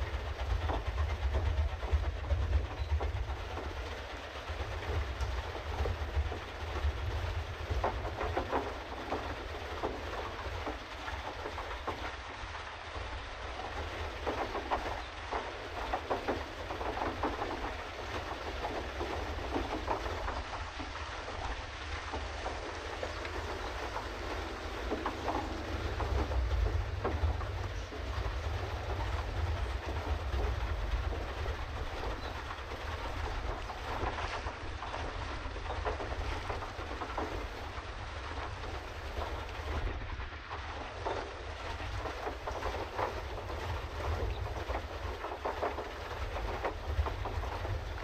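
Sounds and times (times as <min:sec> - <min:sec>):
paddle wheel churning clatter: 0:00.0 - 0:48.0
low rumble: 0:18.9 - 0:45.0.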